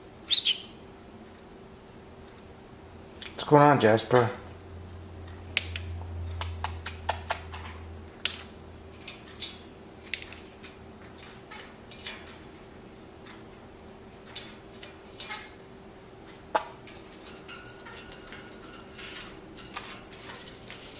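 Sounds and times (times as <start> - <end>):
low steady hum: 0.0 - 20.9
parrot clicking: 5.6 - 7.6.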